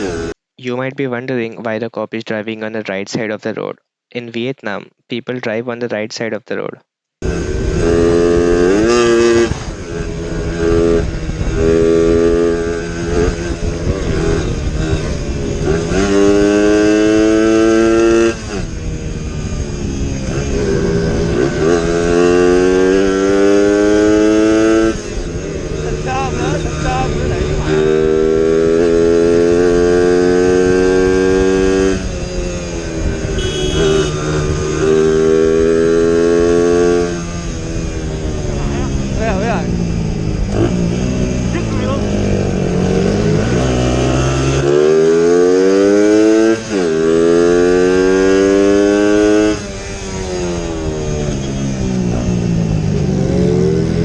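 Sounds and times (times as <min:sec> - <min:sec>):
motorcycle engine revving: 0:00.0 - 0:00.4, 0:07.2 - 0:54.0
road noise: 0:00.0 - 0:00.4, 0:07.2 - 0:54.0
wind rushing: 0:07.3 - 0:44.6
high thin tone: 0:33.3 - 0:34.4.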